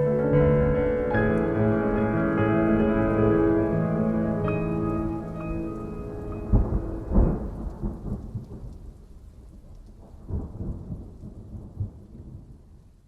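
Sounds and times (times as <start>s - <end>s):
held music notes: 0.0s - 8.2s
rolling thunder: 0.0s - 13.0s
steady rain: 0.0s - 13.0s.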